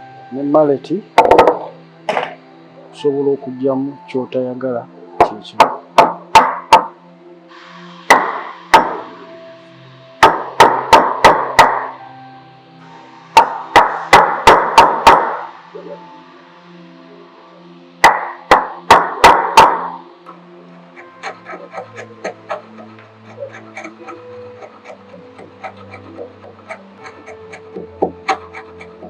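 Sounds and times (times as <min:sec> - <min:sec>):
mallet striking chisel: 0:01.2 - 0:02.4, 0:05.2 - 0:07.0, 0:08.1 - 0:09.1, 0:10.2 - 0:12.0, 0:13.4 - 0:15.5, 0:18.0 - 0:20.0, 0:21.0 - 0:29.0.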